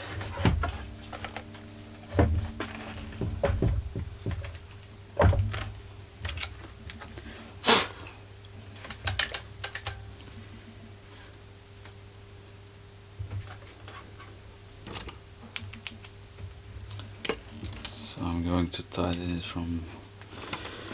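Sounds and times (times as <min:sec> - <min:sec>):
metallic knock: 0:02.2 - 0:04.6.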